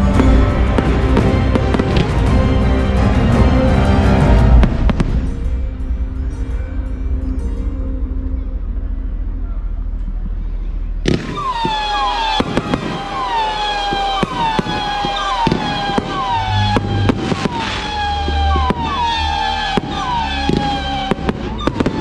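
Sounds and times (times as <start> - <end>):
whistling fireworks: 0.0 - 5.3, 11.1 - 22.0
fireworks cracks and bangs: 0.0 - 5.4, 11.0 - 22.0.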